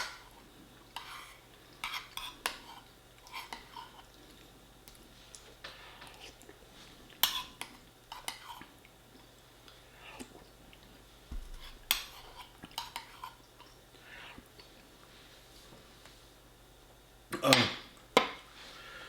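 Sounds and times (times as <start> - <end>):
cutlery clinking on a plate: 11.5 - 13.3.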